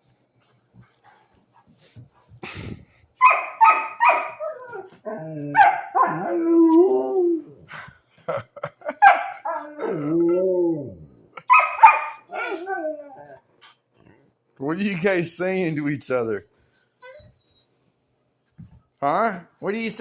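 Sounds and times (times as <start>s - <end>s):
dogs barking: 3.2s - 6.3s, 8.9s - 9.8s, 11.4s - 12.8s
dogs howling: 3.2s - 7.6s, 9.0s - 13.5s.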